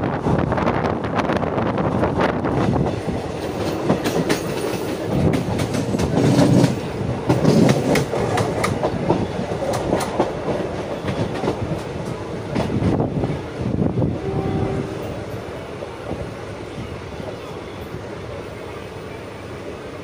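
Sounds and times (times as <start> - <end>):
train coaches rumbling: 0.0 - 20.0
wheels clacking over rail joints: 2.5 - 13.4.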